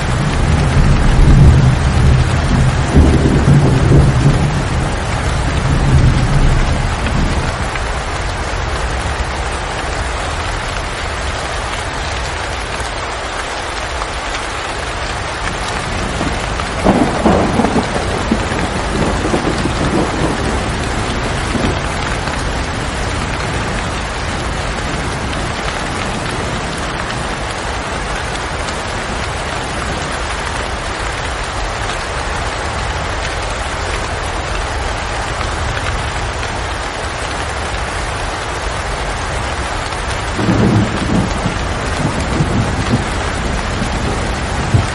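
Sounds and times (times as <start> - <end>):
thunder rumbling: 0.0 - 9.4, 15.4 - 31.6, 39.0 - 44.9
steady rain: 0.0 - 44.9.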